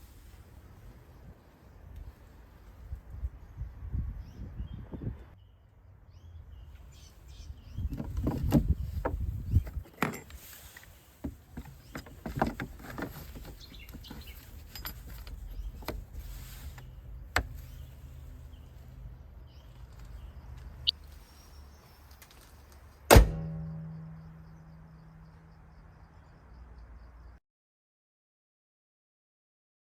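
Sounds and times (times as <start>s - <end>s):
loud slam: 23.1s - 24.3s
low hum: 23.2s - 26.4s.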